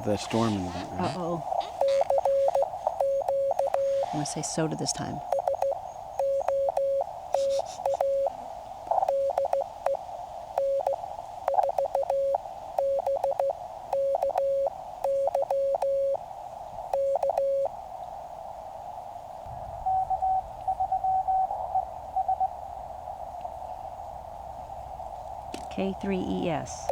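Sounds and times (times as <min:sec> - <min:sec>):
morse code tone: 0:00.0 - 0:08.3, 0:08.9 - 0:10.0, 0:10.6 - 0:16.2, 0:16.9 - 0:17.7
receiver hiss: 0:00.0 - 0:26.9
keying clicks: 0:01.6 - 0:04.3, 0:05.2 - 0:08.3, 0:09.0 - 0:10.0, 0:10.6 - 0:16.0, 0:16.9 - 0:17.5.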